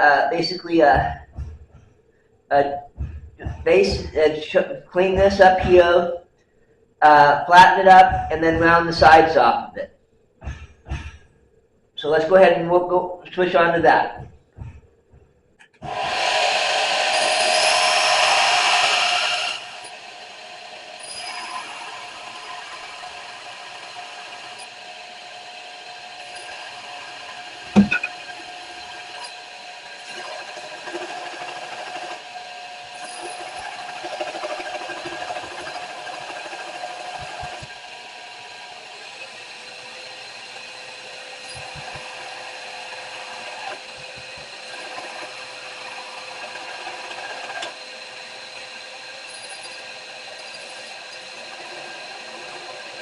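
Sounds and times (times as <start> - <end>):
sharp knock: 10.4 - 11.3, 27.7 - 28.1
electric grinder whine: 15.7 - 53.0
steel being ground: 15.8 - 53.0.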